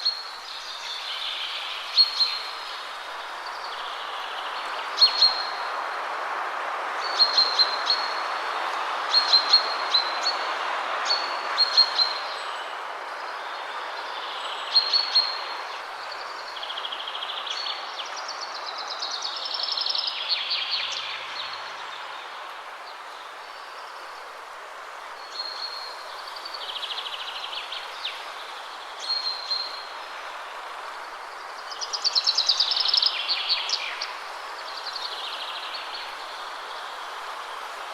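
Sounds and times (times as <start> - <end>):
wind rushing through trees: 0.0 - 37.9
songbirds singing: 25.1 - 37.7.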